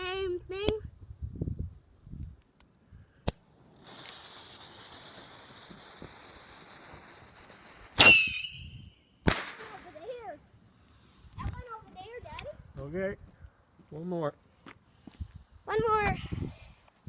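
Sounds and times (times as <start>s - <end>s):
firework fuse hissing: 3.2s - 10.3s
sharp firework crack: 3.2s - 10.4s
rocket bang and squeal: 8.0s - 9.8s.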